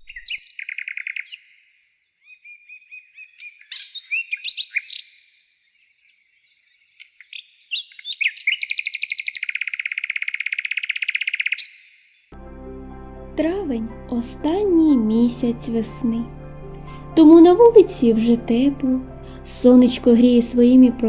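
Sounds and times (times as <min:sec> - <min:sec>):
songbirds chirping and whistling: 0:00.0 - 0:12.3.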